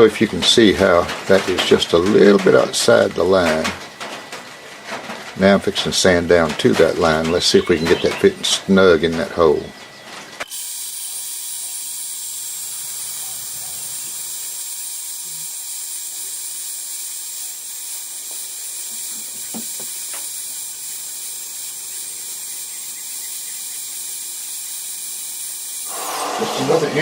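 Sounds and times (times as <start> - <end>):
power sander running: 10.4 - 27.0.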